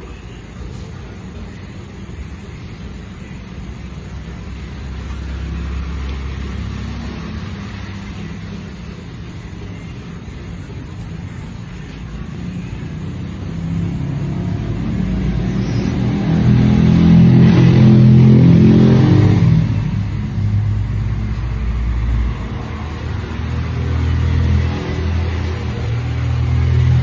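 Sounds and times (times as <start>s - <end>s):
vehicle engine passing by: 3.9s - 9.0s, 12.4s - 27.0s.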